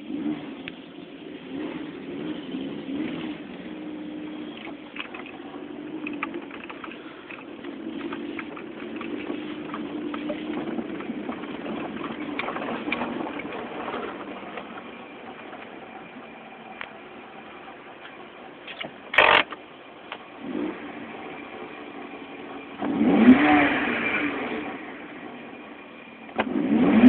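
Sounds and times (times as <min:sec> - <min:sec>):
car engine at low revs: 0:00.0 - 0:27.0
light clicks and crackles: 0:06.0 - 0:13.6.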